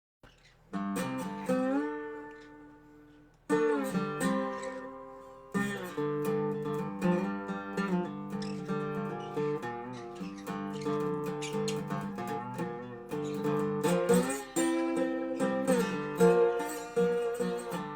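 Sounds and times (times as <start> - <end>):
slide resonator guitar playing blues: 0.7 - 17.9.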